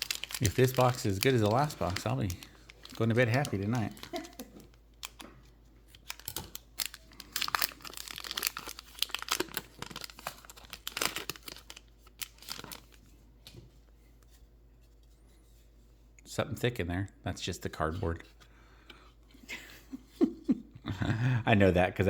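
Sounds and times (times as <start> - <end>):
card pack wrapper tearing and crinkling: 0.0 - 5.3, 5.9 - 13.0
cards being handled: 0.0 - 6.9.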